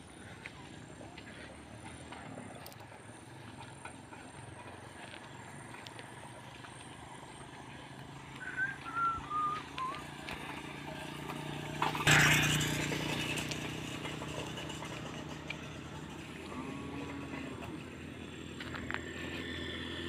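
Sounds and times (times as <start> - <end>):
bird whistled notes: 8.4 - 10.1.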